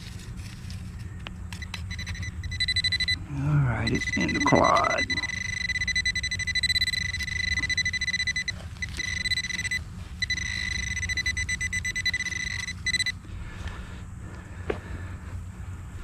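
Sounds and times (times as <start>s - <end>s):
metal detector alert tone: 1.5s - 13.2s.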